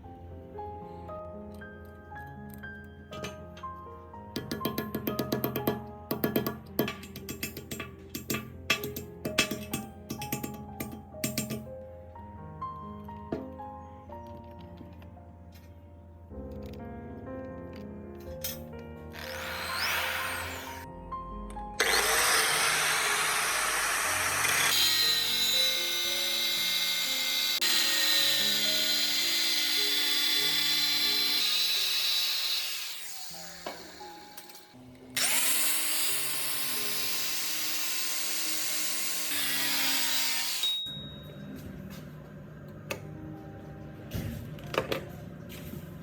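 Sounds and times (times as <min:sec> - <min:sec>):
background music: 0:00.0 - 0:46.0
electric power tool running: 0:19.1 - 0:20.9, 0:21.8 - 0:40.8.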